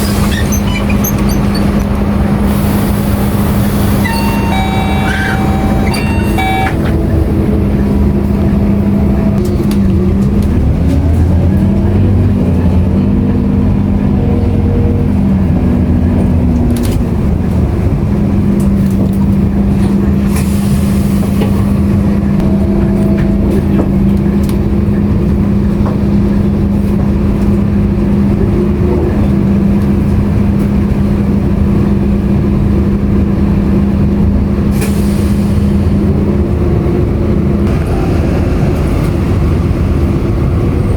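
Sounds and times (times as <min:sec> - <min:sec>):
bus body rattling: 0:00.0 - 0:40.9
bus engine running: 0:00.0 - 0:40.9
drivetrain whine: 0:00.8 - 0:20.2.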